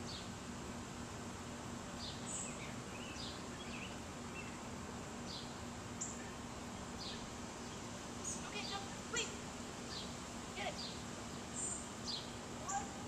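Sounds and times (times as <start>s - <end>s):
faint steady hum: 0.0s - 13.0s
songbirds chirping: 0.0s - 13.0s.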